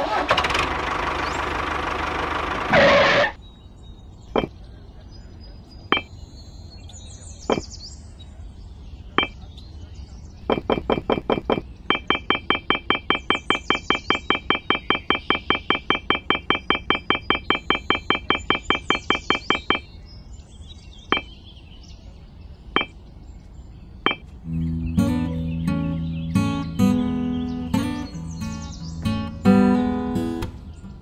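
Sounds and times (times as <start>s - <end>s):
acoustic guitar music: 24.4s - 31.0s.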